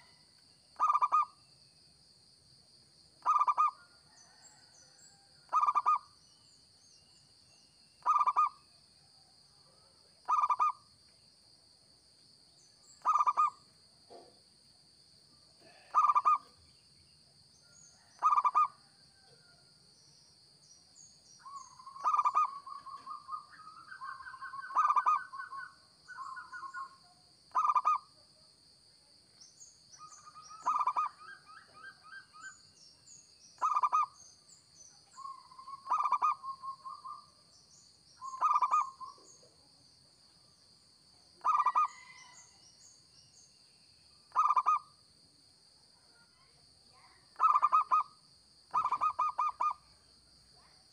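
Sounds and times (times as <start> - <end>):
dove cooing: 0.8 - 1.3, 3.2 - 4.4, 5.5 - 6.0, 8.0 - 8.5, 10.3 - 10.8, 15.6 - 16.5, 21.8 - 26.8, 30.5 - 32.3, 35.8 - 37.1, 38.3 - 39.2, 41.4 - 42.2, 44.3 - 44.8, 47.4 - 48.0, 48.7 - 49.7
dove trilling coos: 0.8 - 1.4, 3.2 - 4.6, 5.5 - 6.1, 8.0 - 8.6, 10.2 - 10.8, 13.0 - 13.6, 15.6 - 16.5, 18.0 - 18.8, 21.4 - 28.1, 30.0 - 32.6, 33.6 - 34.2, 35.2 - 37.4, 38.2 - 39.4, 41.4 - 42.4, 44.3 - 44.9, 47.4 - 48.1, 48.7 - 49.8.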